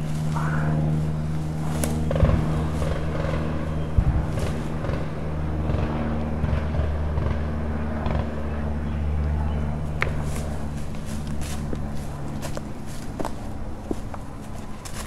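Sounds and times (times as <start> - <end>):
dry leaves rustling and crackling: 0.0 - 5.8, 9.8 - 15.0
steady low hum: 0.0 - 15.0.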